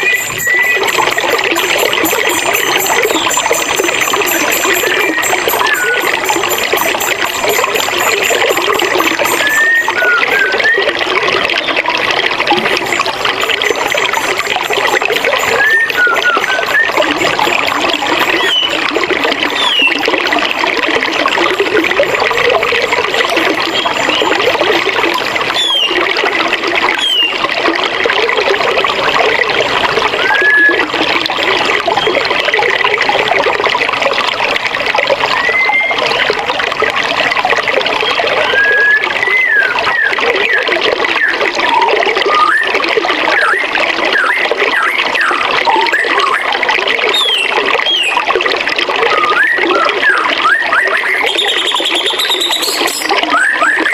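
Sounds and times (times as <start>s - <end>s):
bird chirps: 0.0s - 10.7s, 13.0s - 18.9s, 19.5s - 20.0s, 25.5s - 26.0s, 47.1s - 48.2s, 50.9s - 53.9s
river water running: 0.0s - 53.9s.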